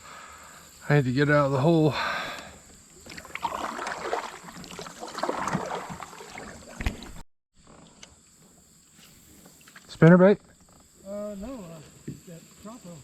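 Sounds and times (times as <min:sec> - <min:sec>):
paddle splashing water: 0:03.0 - 0:07.2.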